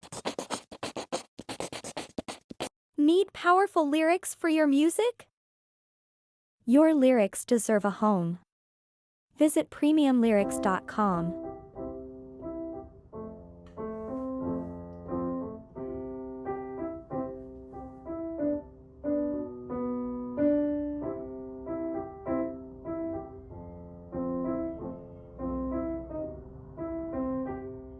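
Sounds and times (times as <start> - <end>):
gentle piano music: 10.4 - 27.9.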